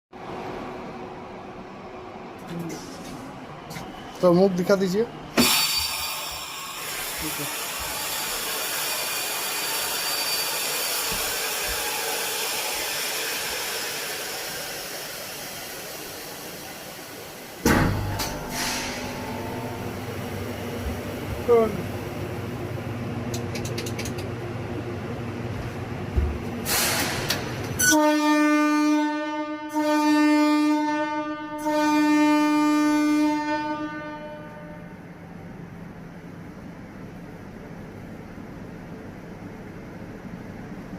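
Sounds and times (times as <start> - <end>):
train passing: 0.2 - 40.9
locomotive air horn blast: 18.3 - 20.0, 27.8 - 35.0
air hissing: 18.4 - 19.3, 26.6 - 27.5.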